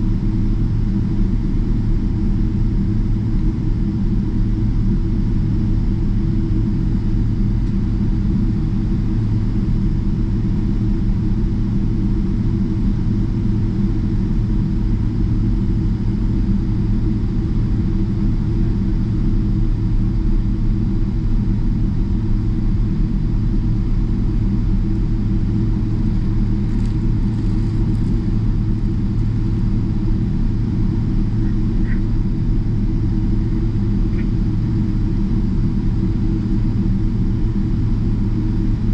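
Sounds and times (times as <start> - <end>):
aircraft cabin low rumble: 0.0 - 38.9.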